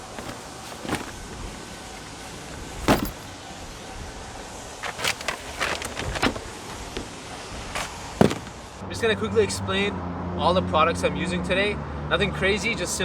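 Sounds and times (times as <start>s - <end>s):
sharp knocks and clatters: 7.8s - 8.6s.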